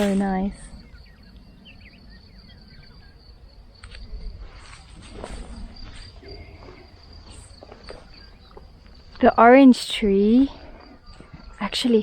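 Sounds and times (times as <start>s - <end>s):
faint bird chirps: 0.0s - 12.0s
high insect trill: 0.0s - 12.0s
footsteps on vegetation: 4.0s - 9.4s.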